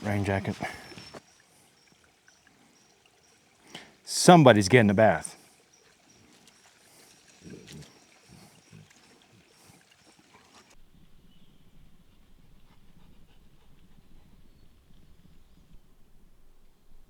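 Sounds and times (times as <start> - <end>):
dog splashing in water: 0.0 - 4.1, 4.7 - 10.8
running water: 0.0 - 10.8.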